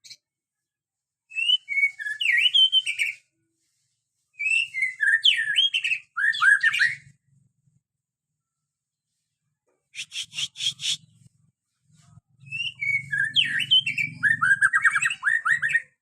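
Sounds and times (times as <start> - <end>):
bird singing whistled notes: 1.3 - 3.3, 4.4 - 7.2, 10.0 - 11.2, 12.4 - 16.0.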